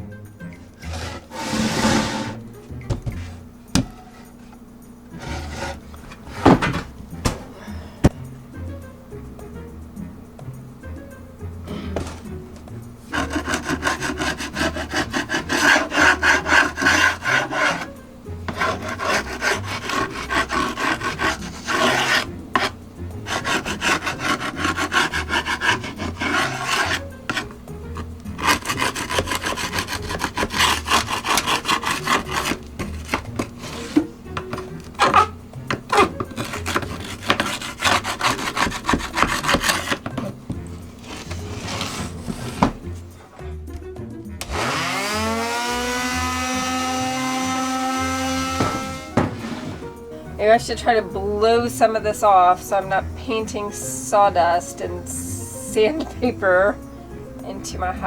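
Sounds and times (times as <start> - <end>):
sandpaper rubbing on wood: 0.8 - 2.4, 5.2 - 5.8, 13.1 - 17.9, 18.5 - 22.7, 23.3 - 27.5, 28.4 - 34.0, 35.9 - 40.1, 41.0 - 42.7, 44.6 - 49.8.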